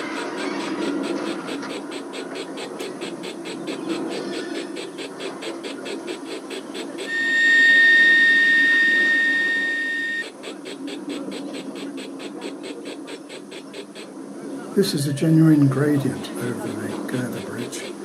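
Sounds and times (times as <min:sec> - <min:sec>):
steam locomotive chuffing: 0:00.0 - 0:14.2, 0:14.8 - 0:18.0
steam whistle blast: 0:07.0 - 0:10.3.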